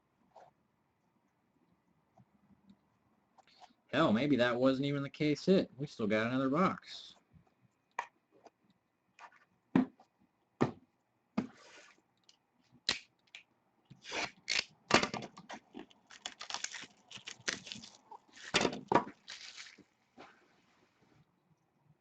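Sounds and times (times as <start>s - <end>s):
packaging tearing and crinkling: 14.0s - 14.7s, 15.7s - 20.0s.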